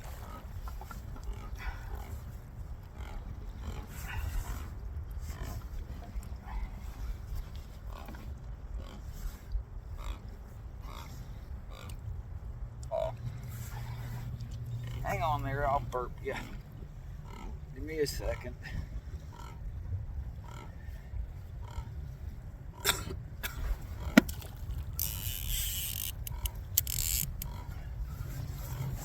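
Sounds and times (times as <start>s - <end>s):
wind rumbling on microphone: 0.0s - 29.0s.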